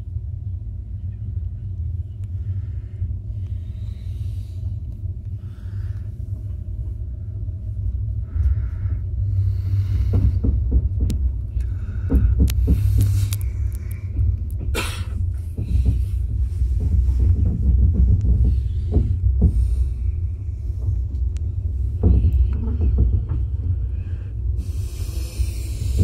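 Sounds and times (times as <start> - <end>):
train rumbling: 0.0 - 26.0
knocks and rattles: 9.9 - 24.3.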